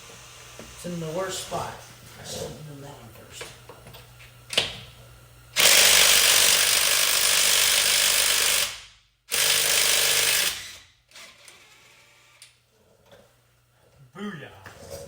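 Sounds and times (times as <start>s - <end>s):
handheld power tool on lug nut: 5.6s - 12.6s.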